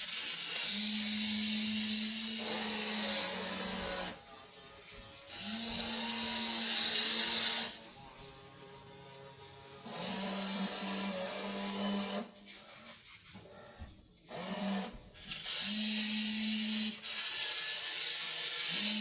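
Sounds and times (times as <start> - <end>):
small electric motors whirring: 0.0 - 4.3, 5.2 - 7.9, 9.1 - 12.3, 14.3 - 19.0.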